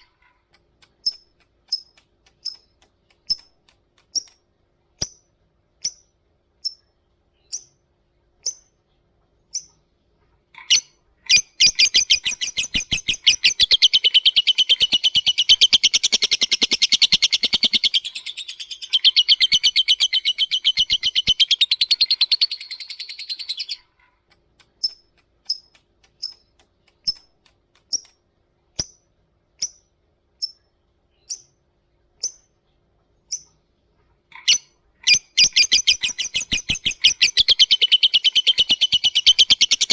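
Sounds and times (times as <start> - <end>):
lovebird chirps: 5.8 - 7.8, 10.6 - 23.9, 30.4 - 31.6, 33.3 - 33.6, 34.3 - 39.9
lovebird chattering trill: 10.6 - 23.9, 34.3 - 39.9.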